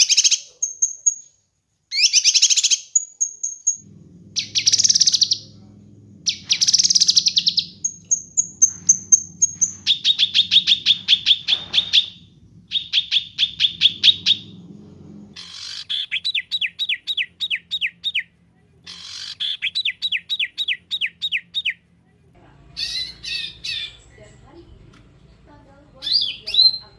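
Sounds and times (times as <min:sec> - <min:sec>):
songbird singing: 0:01.9 - 0:18.3, 0:22.4 - 0:26.9
low steady hum: 0:03.7 - 0:16.4, 0:21.9 - 0:26.9.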